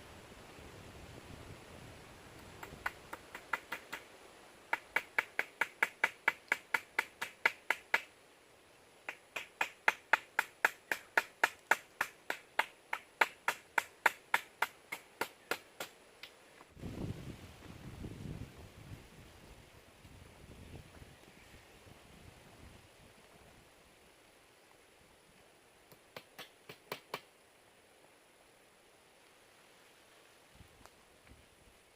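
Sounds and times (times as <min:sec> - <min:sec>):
rapid sharp taps: 0:02.5 - 0:04.1, 0:04.7 - 0:08.1, 0:09.1 - 0:16.0.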